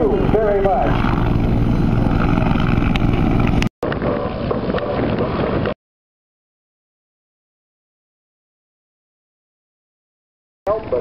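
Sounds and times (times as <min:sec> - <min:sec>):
helicopter rotor and engine: 0:00.0 - 0:04.9, 0:10.7 - 0:11.0
wind buffeting microphone: 0:00.0 - 0:05.8.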